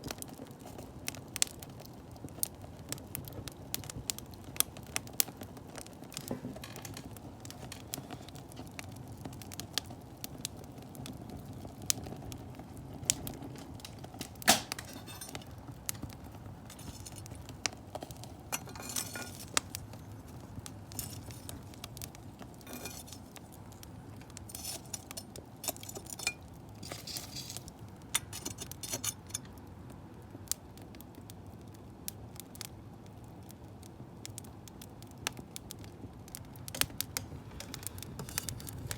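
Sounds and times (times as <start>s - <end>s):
low rumble of flames: 0.0s - 38.9s
wood fire crackling and popping: 0.0s - 38.9s
loud wood snap: 14.4s - 15.0s.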